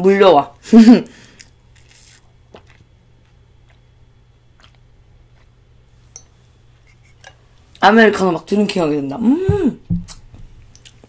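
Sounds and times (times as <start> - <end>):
soft chewing: 1.2 - 7.8, 10.1 - 11.0.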